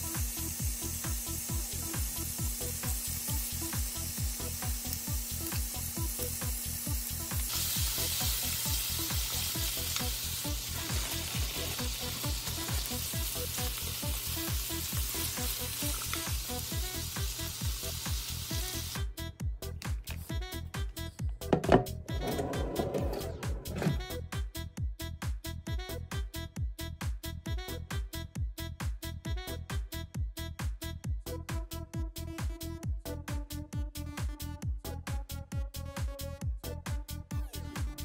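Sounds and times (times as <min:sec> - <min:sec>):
food sizzling in frying pan: 0:00.0 - 0:19.0
background music with steady beat: 0:00.0 - 0:38.0.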